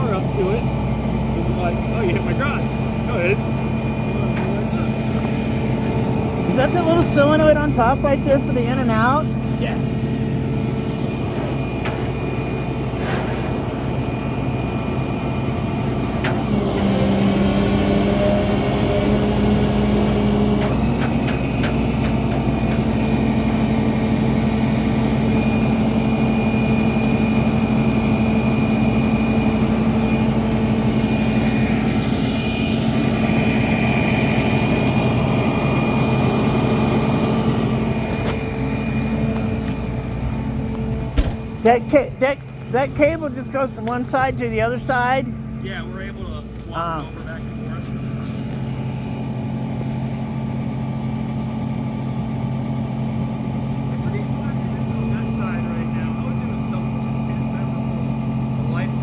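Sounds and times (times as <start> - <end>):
engine and pump hum: 0.0 - 59.0
hydraulic hissing rush: 16.4 - 20.7.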